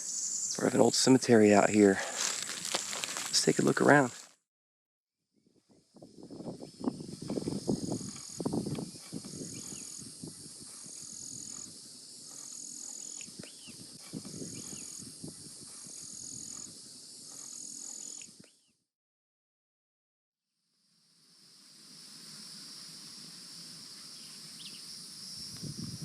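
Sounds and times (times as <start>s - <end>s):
pulsing insect buzz: 0.0s - 1.0s, 5.8s - 18.5s
insects droning: 0.0s - 4.3s, 5.6s - 18.6s, 20.8s - 26.0s
footsteps in leaf litter: 1.7s - 4.4s
faint bird chirps: 9.0s - 10.1s, 12.5s - 13.8s, 14.4s - 15.1s, 23.9s - 25.6s.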